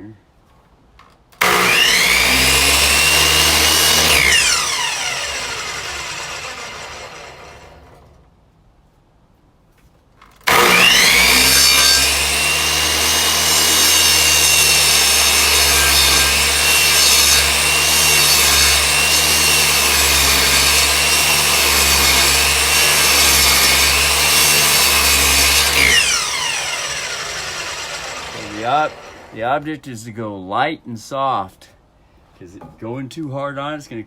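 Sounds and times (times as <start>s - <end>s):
electric saw cutting wood: 1.4s - 8.1s, 10.4s - 29.4s.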